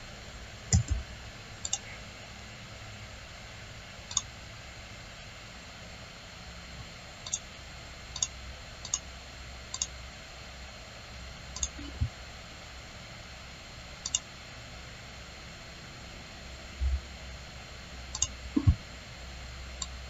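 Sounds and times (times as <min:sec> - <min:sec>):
faint steady hum: 0:00.0 - 0:20.0
computer mouse clicking: 0:00.7 - 0:01.0, 0:01.6 - 0:01.9, 0:07.2 - 0:07.5, 0:08.2 - 0:09.1, 0:09.7 - 0:09.9, 0:11.6 - 0:12.0, 0:14.0 - 0:14.3, 0:18.1 - 0:18.8.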